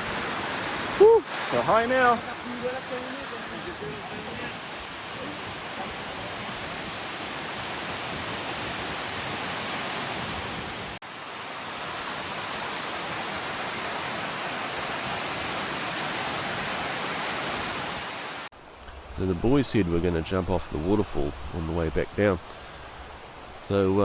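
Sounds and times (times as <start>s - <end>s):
waterfall rushing water: 0.0s - 18.5s.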